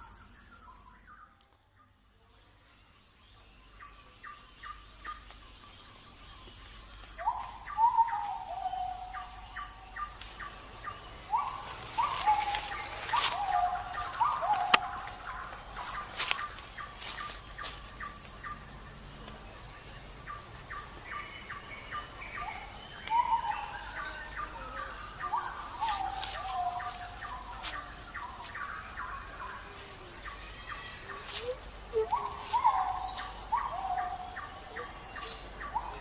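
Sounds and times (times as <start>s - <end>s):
birds calling: 7.2s - 18.6s, 20.2s - 36.0s.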